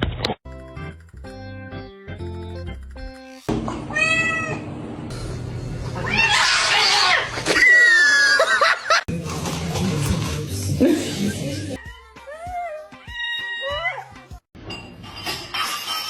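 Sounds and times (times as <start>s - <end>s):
cat meowing: 3.9s - 4.7s, 11.8s - 14.2s.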